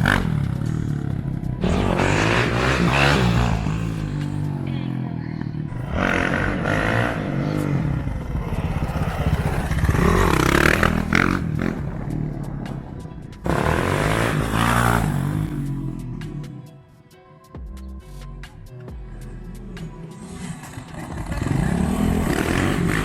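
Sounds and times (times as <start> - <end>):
dirt bike engine revving: 0.0 - 16.4, 20.2 - 23.0.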